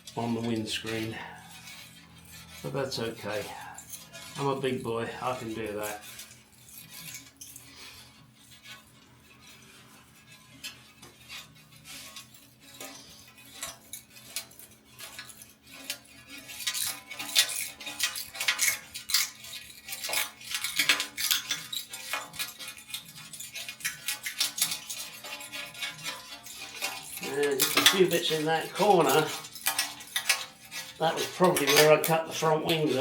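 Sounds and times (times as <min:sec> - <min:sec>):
scraper blade clinking on glass: 0:11.6 - 0:33.0.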